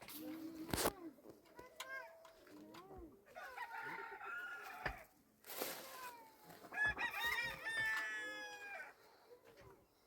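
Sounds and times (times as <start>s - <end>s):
rooster crowing: 3.4s - 5.0s, 6.8s - 9.0s.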